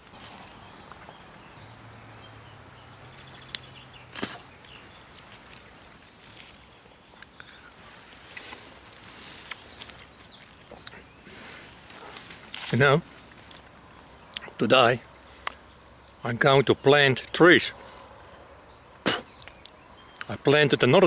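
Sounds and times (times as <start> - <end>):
outdoor ambience: 0.0 - 21.0
small birds chirping: 0.0 - 21.0
sharp snaps: 3.4 - 5.6, 19.0 - 20.3.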